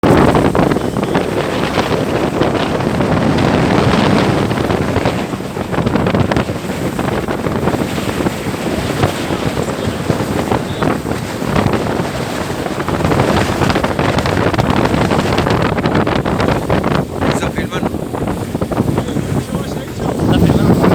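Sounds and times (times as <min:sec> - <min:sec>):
water rushing and splashing: 0:00.0 - 0:20.9
wind buffeting microphone: 0:00.0 - 0:20.9.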